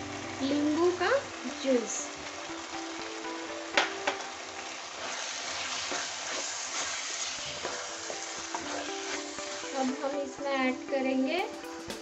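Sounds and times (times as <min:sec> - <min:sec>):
food sizzling in a pan: 0:00.0 - 0:12.0
wooden spatula stirring: 0:05.0 - 0:10.0.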